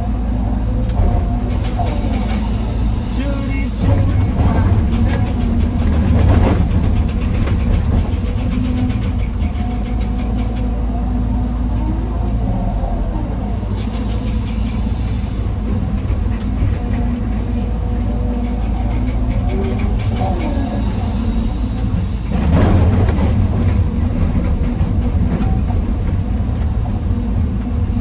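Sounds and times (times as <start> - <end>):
diesel machinery engine running: 0.0 - 28.0.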